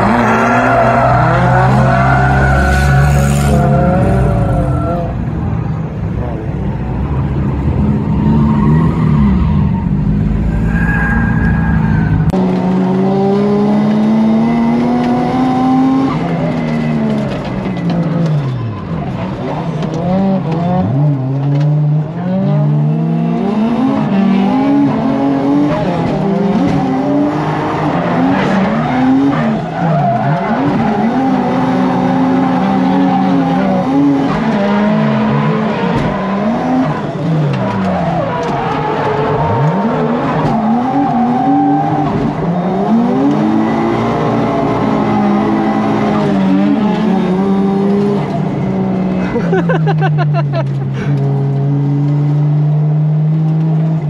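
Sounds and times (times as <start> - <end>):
tyre squeal: 10.3 - 12.3.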